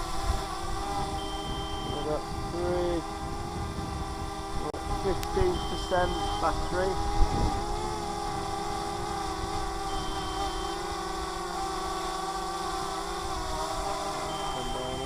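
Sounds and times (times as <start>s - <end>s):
wind rumbling on microphone: 0.0s - 10.5s
drone propellers whining: 0.0s - 15.0s
faint high beep: 1.2s - 2.1s, 5.4s - 6.5s, 9.9s - 10.8s, 14.2s - 15.0s.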